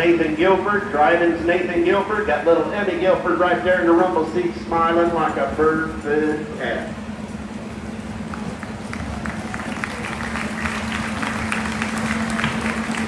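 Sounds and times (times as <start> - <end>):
steady low hum: 0.0 - 13.0
crowd clapping: 8.3 - 13.0.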